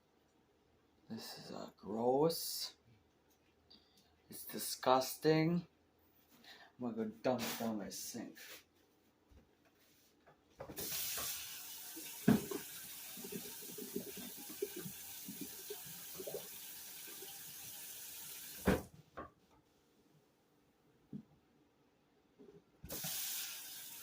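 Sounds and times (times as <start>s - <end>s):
tap running into sink: 12.0s - 16.5s.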